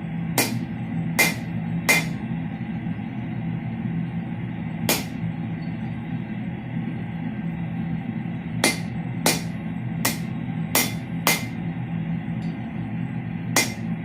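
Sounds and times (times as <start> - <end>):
hammer blows on steel anvil: 0.4 - 2.2, 4.9 - 5.2, 8.6 - 11.6, 13.6 - 13.9.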